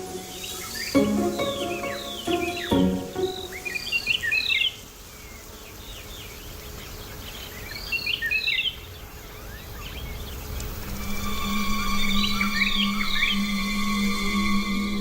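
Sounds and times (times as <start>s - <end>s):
birds chirping: 0.0s - 4.4s
faint outdoor background: 0.0s - 15.0s.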